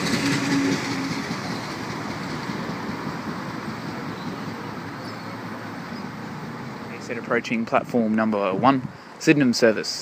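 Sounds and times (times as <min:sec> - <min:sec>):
train rumbling on rails: 0:00.0 - 0:07.0.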